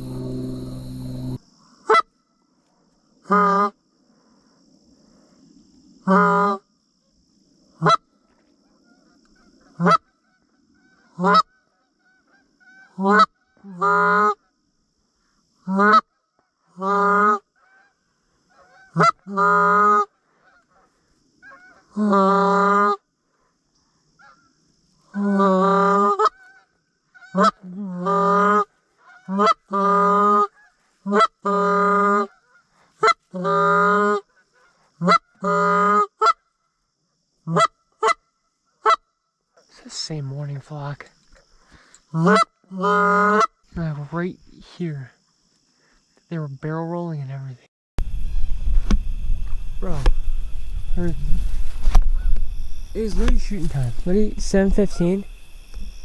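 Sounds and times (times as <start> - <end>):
goose call honks: 0.0 - 2.0, 9.8 - 10.1, 12.1 - 14.4, 18.5 - 20.6, 27.2 - 36.4, 37.5 - 38.2, 42.2 - 43.6, 53.0 - 55.3.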